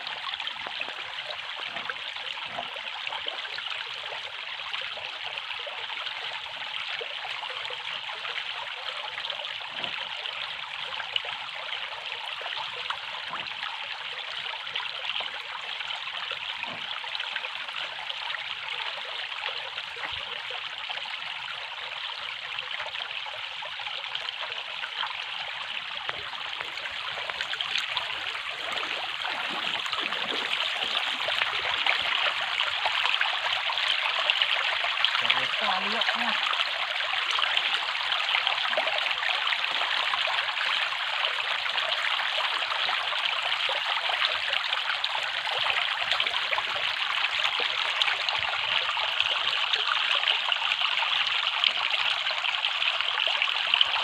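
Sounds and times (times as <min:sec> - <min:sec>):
water trickling: 0:00.0 - 0:54.0.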